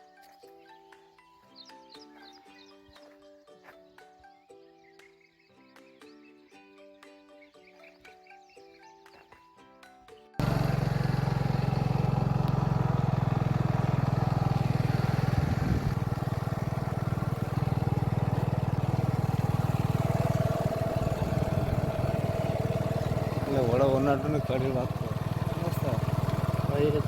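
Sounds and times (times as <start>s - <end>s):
soft background music: 0.0s - 10.4s
motorcycle engine running: 10.4s - 27.0s.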